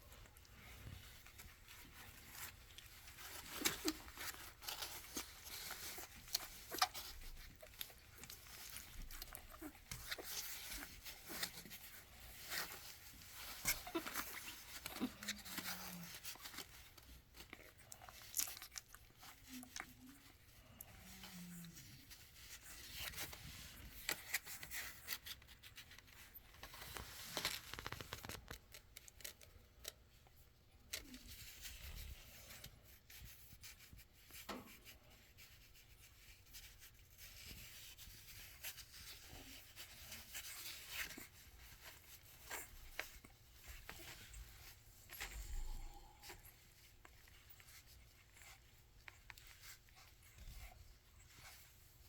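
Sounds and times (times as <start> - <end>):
rustling of bedding: 0.0 - 52.0
puppies suckling clicks: 0.2 - 35.0, 46.2 - 52.0.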